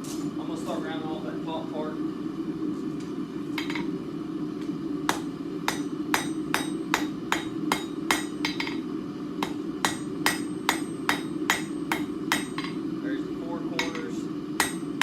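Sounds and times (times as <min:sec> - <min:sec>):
constant low hum: 0:00.0 - 0:15.0
hammer striking steel on an anvil: 0:05.1 - 0:12.8, 0:13.8 - 0:15.0.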